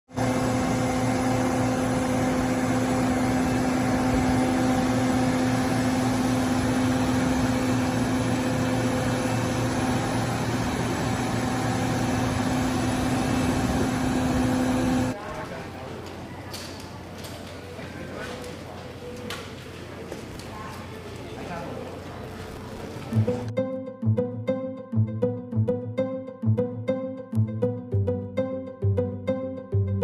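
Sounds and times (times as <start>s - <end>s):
jet airliner drone: 0.1s - 15.2s.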